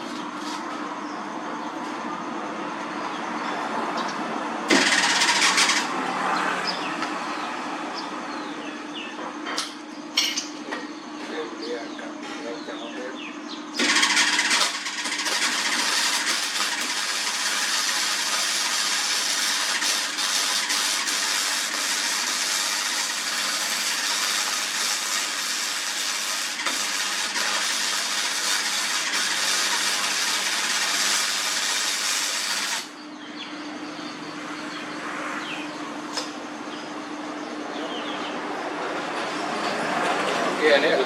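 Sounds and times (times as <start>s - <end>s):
arc welding crackling hiss: 15.3s - 32.9s.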